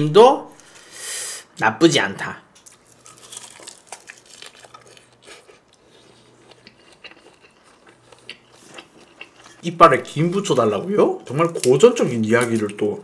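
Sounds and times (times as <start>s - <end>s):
seaweed crunching: 2.6s - 5.4s, 10.2s - 12.9s
chewing seaweed and rice: 2.6s - 13.0s.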